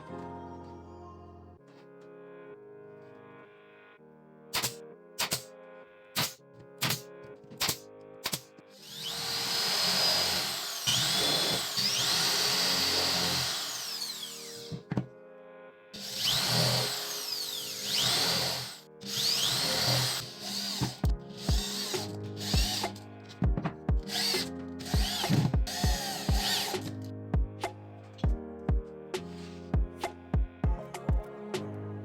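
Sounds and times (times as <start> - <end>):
power tool motor whining: 8.8 - 14.8, 16.0 - 23.0, 24.1 - 26.9.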